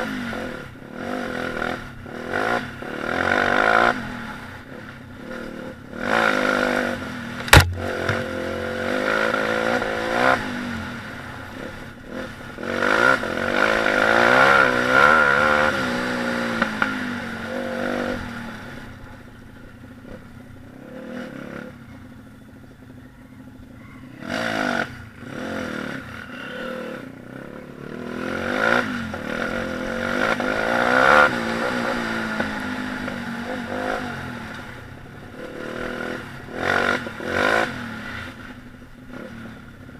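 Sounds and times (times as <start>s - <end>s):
pit bike engine revving: 0.0s - 19.0s, 24.2s - 39.9s
sharp knock: 7.4s - 8.3s.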